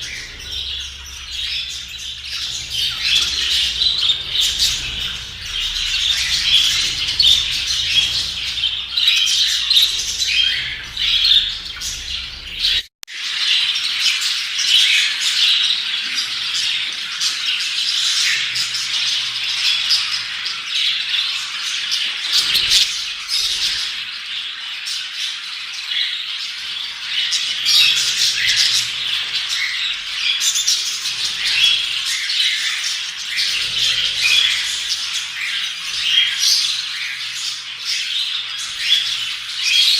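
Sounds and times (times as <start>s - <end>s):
budgerigars chattering: 0.0s - 12.8s, 14.7s - 25.6s, 26.6s - 39.9s.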